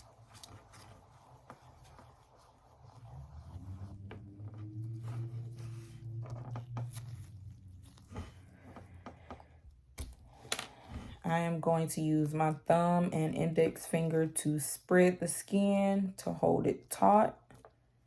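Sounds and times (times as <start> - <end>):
swab wiping skin rustles: 0.0 - 9.0
low steady hum: 0.0 - 15.1.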